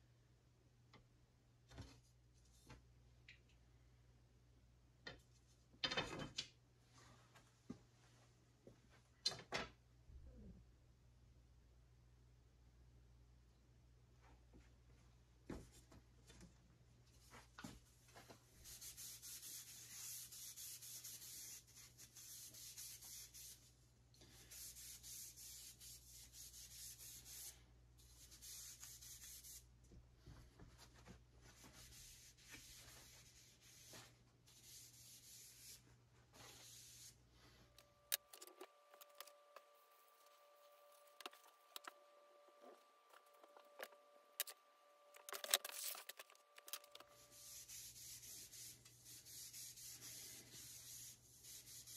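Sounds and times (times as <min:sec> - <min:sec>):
faint steady hum: 0:09.8 - 0:51.9
sandpaper rubbing wooden shafts: 0:45.2 - 0:51.9.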